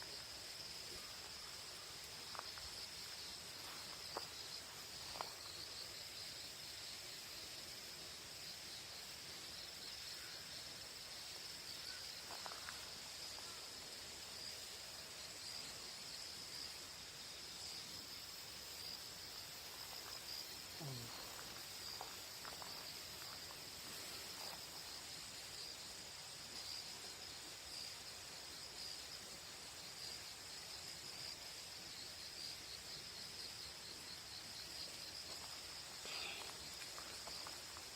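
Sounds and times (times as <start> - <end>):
crickets chirring: 0.0 - 37.9.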